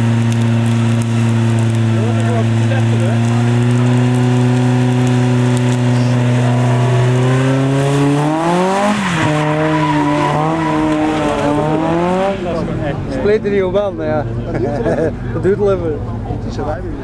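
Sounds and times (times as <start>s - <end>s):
car engine revving high: 0.0s - 13.3s
tyres squealing: 1.8s - 12.7s.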